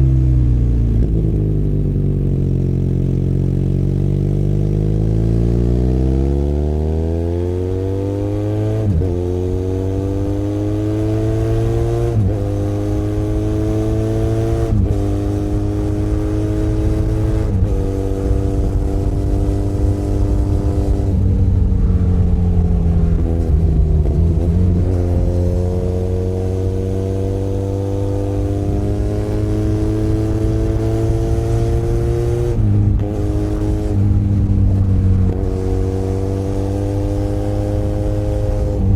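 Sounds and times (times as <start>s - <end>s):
wind rush: 14.7s - 38.9s.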